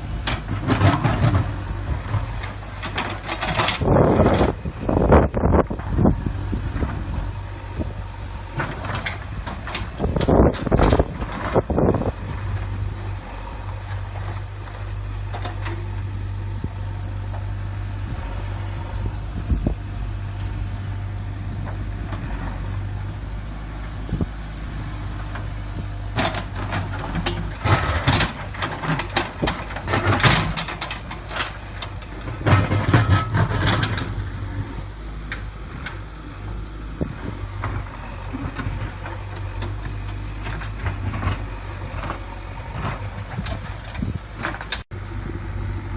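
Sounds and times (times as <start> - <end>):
diesel engine running: 0.0 - 45.9
metal clanks and knocks: 0.2 - 4.6, 26.2 - 34.3.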